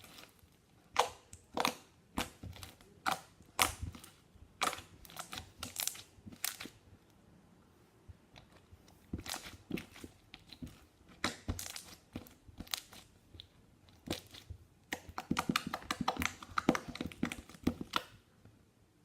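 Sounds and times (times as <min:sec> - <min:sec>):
slime clicking and popping: 0:00.9 - 0:06.8, 0:14.0 - 0:18.2.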